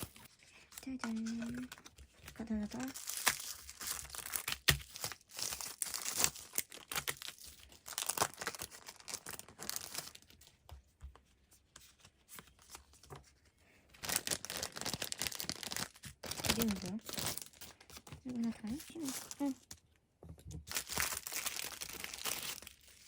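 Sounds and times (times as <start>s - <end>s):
packaging tearing and crinkling: 1.0s - 10.3s, 14.0s - 19.6s, 20.6s - 23.0s.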